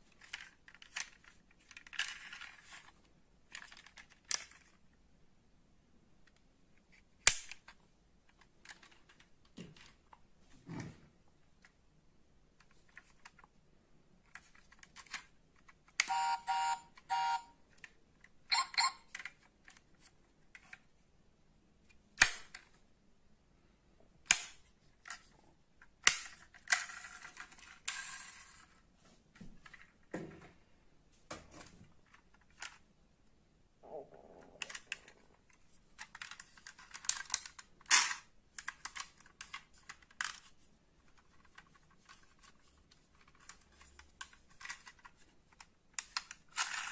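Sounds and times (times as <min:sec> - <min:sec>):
metal model cars clicking: 0:34.6 - 0:40.5, 0:41.1 - 0:46.9.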